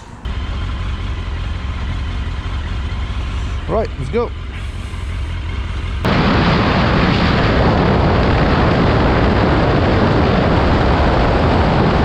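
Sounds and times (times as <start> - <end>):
low engine hum: 0.0 - 12.0
wind buffeting microphone: 6.0 - 12.0.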